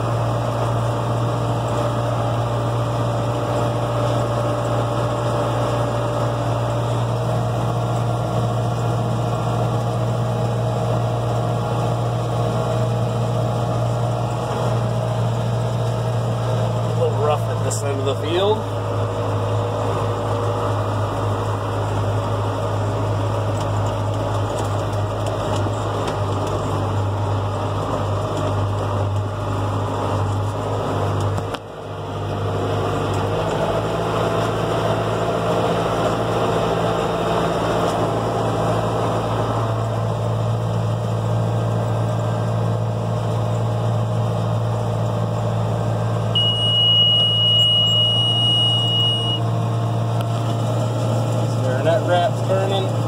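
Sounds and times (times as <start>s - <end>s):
tractor diesel engine running: 0.0s - 53.0s
steady high beep: 46.4s - 49.5s.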